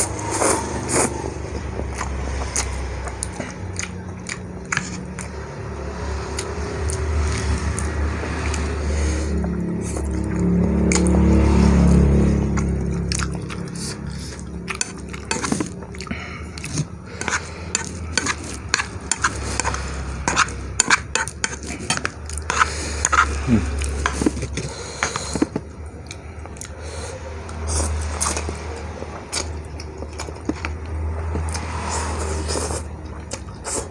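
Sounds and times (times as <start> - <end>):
low rumble: 0.0 - 21.1
cutlery clinking against a bowl: 16.6 - 23.3.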